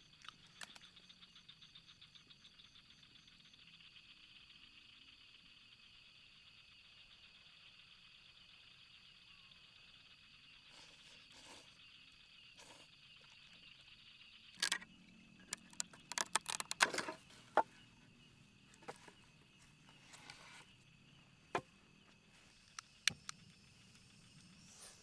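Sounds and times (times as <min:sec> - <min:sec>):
sharp clicks and knocks: 0:14.6 - 0:17.2, 0:22.7 - 0:23.4.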